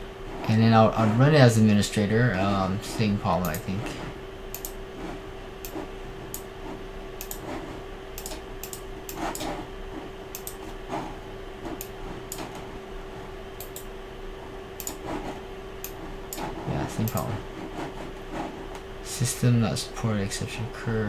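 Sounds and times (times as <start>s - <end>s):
steady low hum: 0.0s - 21.0s
computer mouse clicks: 3.4s - 3.7s, 4.5s - 4.8s, 5.6s - 6.5s, 7.2s - 7.6s, 8.2s - 9.6s, 10.3s - 10.7s, 11.7s - 12.7s, 13.6s - 13.9s, 14.8s - 15.2s, 15.8s - 17.3s.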